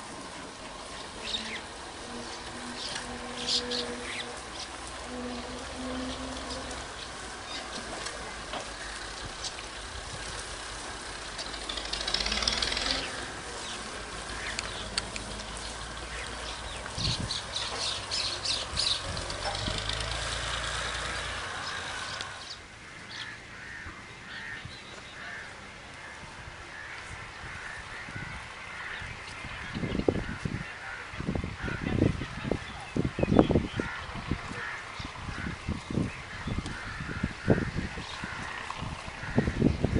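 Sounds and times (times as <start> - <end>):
low motor hum: 0.0 - 30.4
animal and bird calls: 0.8 - 39.9.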